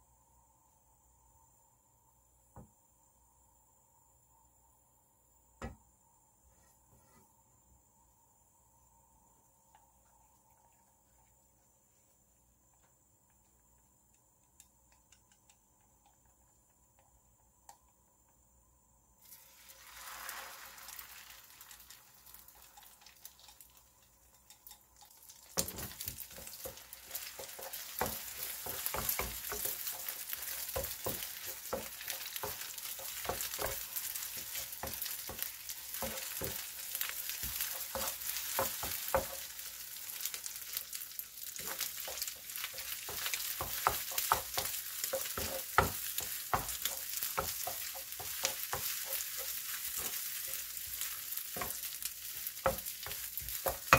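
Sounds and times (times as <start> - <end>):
eggs sizzling in a pan: 19.1 - 53.9
spatula tapping and scraping pan: 24.3 - 40.4, 41.6 - 53.9.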